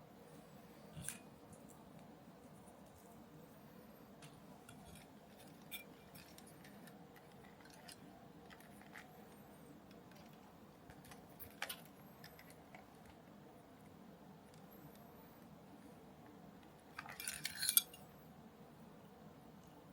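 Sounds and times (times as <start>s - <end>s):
small parts and tools clicking: 4.2s - 15.5s, 16.2s - 18.1s.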